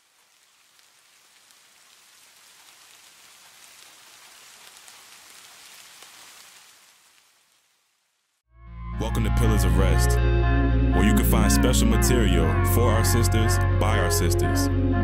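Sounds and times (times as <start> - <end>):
raindrop ticks: 0.0 - 7.5
falling rain hiss: 0.0 - 8.4.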